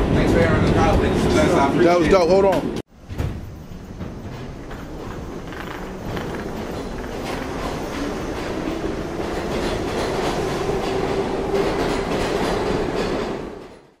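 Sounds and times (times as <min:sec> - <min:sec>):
train rumbling on rails: 0:00.0 - 0:14.0
wheels clicking over rail joints: 0:03.1 - 0:08.4.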